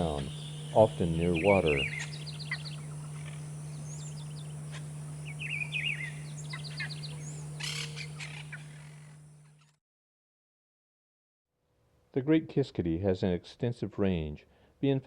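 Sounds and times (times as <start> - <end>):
bird chattering calls: 0.0 - 9.2
low hum: 0.0 - 9.6.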